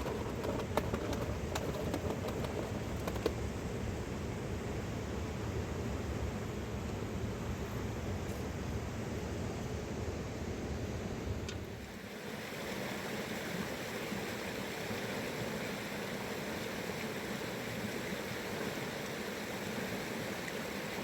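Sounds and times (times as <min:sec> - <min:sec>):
river water rushing: 0:11.9 - 0:21.0.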